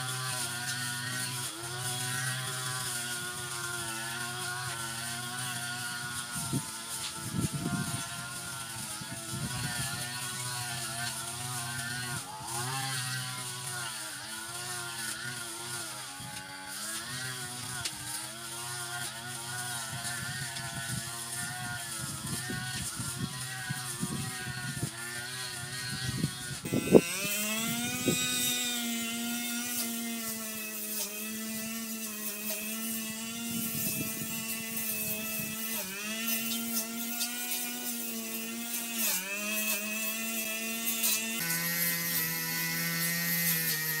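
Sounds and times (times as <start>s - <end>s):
brush cutter engine running: 0.0s - 44.0s.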